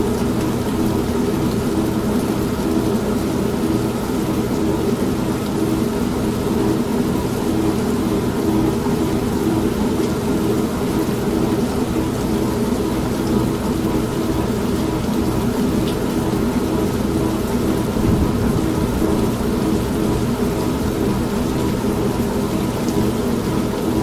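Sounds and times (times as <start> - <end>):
continuous rain: 0.0 - 24.0
washing machine motor hum: 0.0 - 24.0
low rumble of thunder: 17.8 - 20.6.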